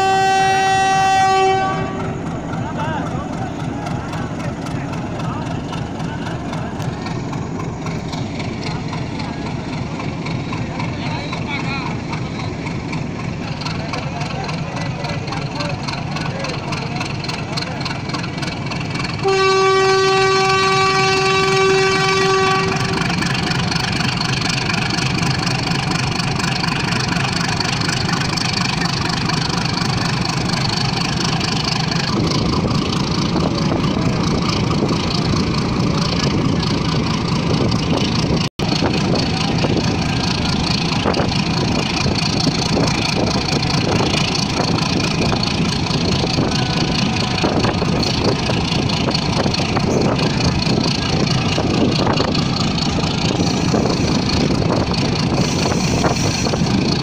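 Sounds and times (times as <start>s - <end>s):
train horn: 0.0s - 2.3s, 19.2s - 23.2s
moving train rumble: 0.0s - 57.0s.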